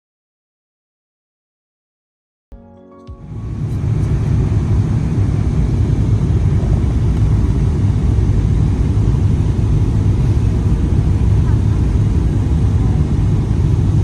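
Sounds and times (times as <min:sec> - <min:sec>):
airplane cabin engine noise: 0:03.1 - 0:14.0.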